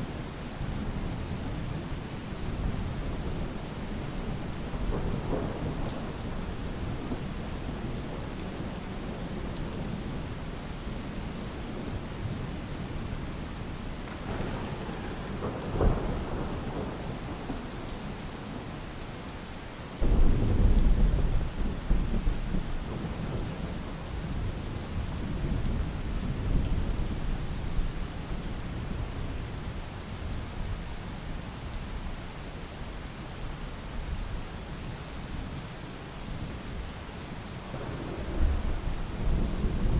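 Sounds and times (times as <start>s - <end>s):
rain falling: 0.0s - 39.9s
thunder rumbling: 2.5s - 10.0s, 14.1s - 18.7s, 20.0s - 23.6s, 37.6s - 39.9s
loud thunderclap: 14.1s - 17.6s, 20.0s - 22.2s, 37.7s - 39.9s.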